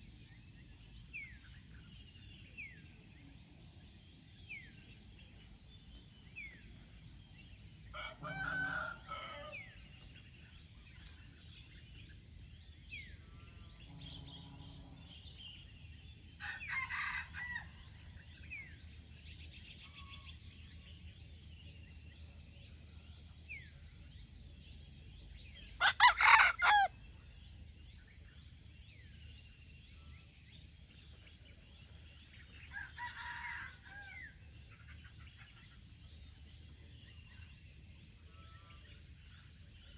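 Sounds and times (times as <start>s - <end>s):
high insect drone: 0.0s - 39.9s
rooster crowing: 7.9s - 9.8s, 25.8s - 26.9s, 32.7s - 34.3s.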